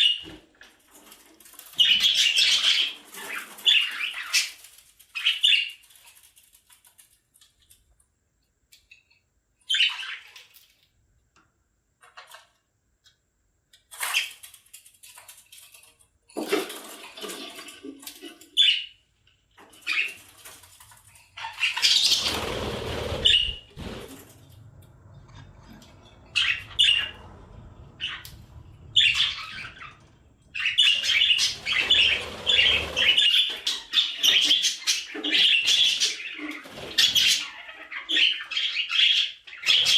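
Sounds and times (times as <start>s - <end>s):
budgerigars chirping and squawking: 1.6s - 5.9s, 9.7s - 10.6s, 18.4s - 19.0s, 19.7s - 24.0s, 26.0s - 39.9s.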